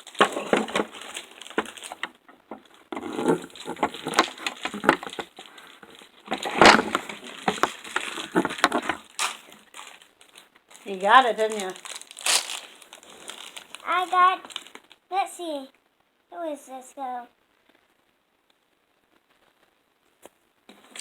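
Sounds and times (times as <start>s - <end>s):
plastic packaging crinkling: 0.0s - 15.1s, 20.7s - 21.0s.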